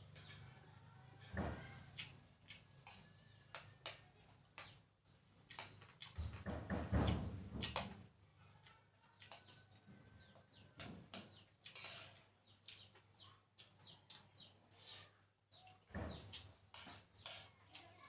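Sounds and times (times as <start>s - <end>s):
small birds chirping: 0.0s - 18.0s
chewing with light clicks: 1.8s - 6.2s.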